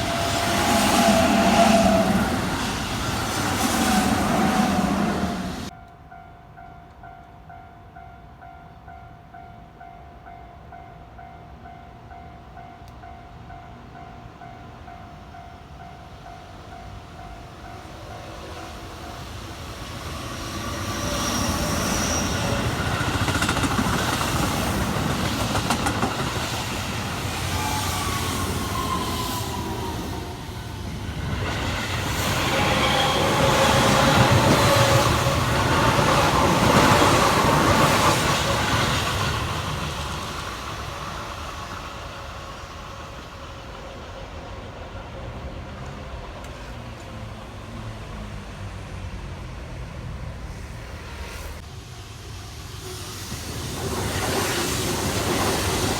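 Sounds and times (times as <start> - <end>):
train motor whine: 19.4 - 39.2.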